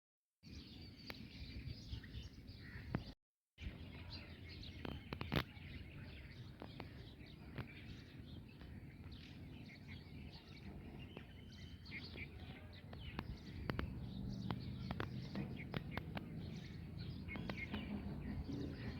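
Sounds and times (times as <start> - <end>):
birds chirping and calling: 0.4 - 18.9
sharp clicks: 12.9 - 16.5.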